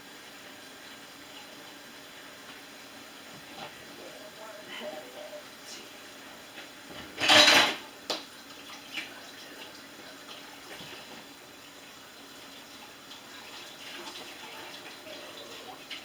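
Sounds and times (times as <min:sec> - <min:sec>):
water gushing from faucet: 0:00.0 - 0:16.0
dishes clinking: 0:06.9 - 0:07.8.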